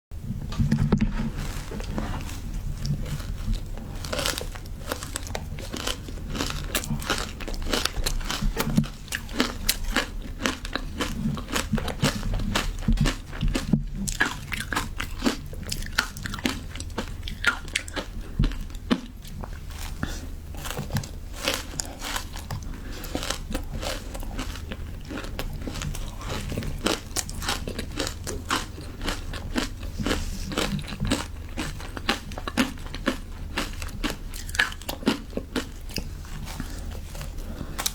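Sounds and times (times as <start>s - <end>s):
ice crunching between teeth: 1.4s - 37.9s.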